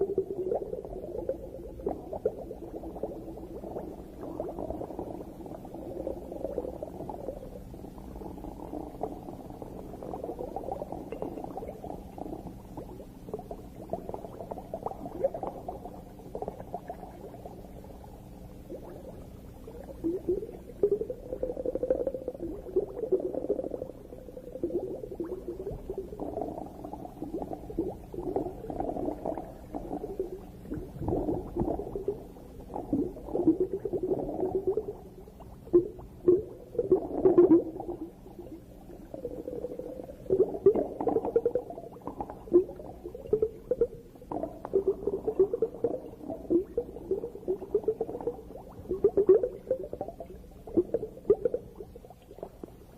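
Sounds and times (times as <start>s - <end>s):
underwater bubbling and gurgling: 0.0s - 52.9s.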